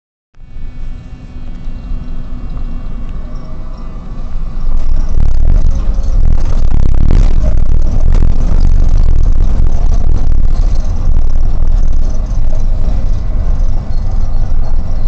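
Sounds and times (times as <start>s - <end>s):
steady whine: 0.4s - 15.0s
tram wheels rumbling: 0.4s - 15.0s.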